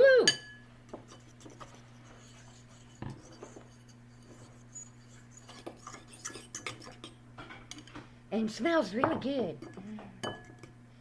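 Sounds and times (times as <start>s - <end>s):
steady low hum: 0.0s - 11.0s
forks scraping in bowls: 1.1s - 7.9s.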